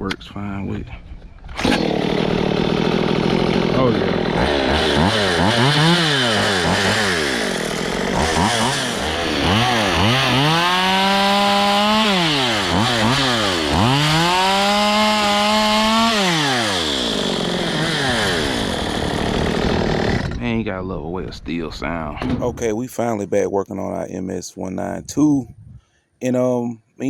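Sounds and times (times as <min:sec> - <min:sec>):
chainsaw revving: 0:01.5 - 0:20.4.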